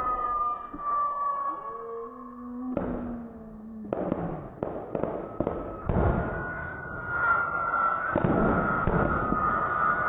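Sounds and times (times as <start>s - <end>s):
rumbling background: 0.7s - 9.5s
fireworks bursting: 3.9s - 10.0s.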